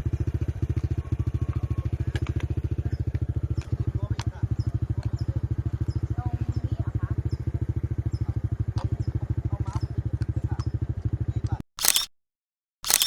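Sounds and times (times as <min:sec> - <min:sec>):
faint short chirps: 0:11.8 - 0:12.1.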